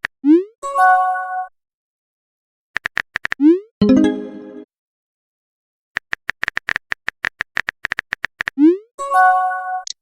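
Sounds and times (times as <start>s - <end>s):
run of sharp clicks: 2.8s - 3.4s, 6.0s - 8.6s
brief musical tone: 3.8s - 4.6s.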